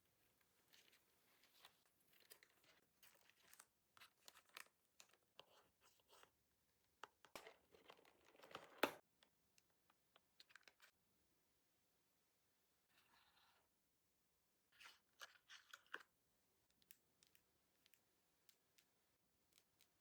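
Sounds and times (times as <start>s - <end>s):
small clicks and taps: 16.6s - 20.0s.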